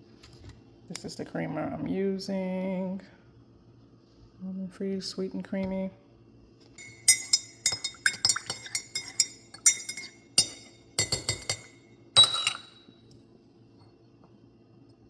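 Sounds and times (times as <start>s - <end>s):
spoon clinking in cup: 6.8s - 12.9s.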